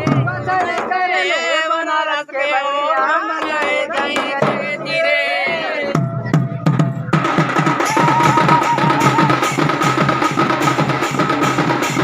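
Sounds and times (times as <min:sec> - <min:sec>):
steady drum beat: 0:00.0 - 0:01.2, 0:02.9 - 0:12.0.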